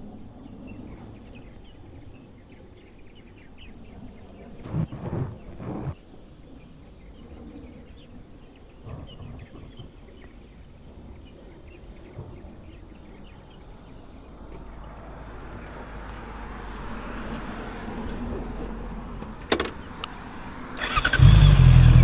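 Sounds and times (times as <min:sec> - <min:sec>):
vehicle engine: 0:04.6 - 0:06.0, 0:14.7 - 0:22.0.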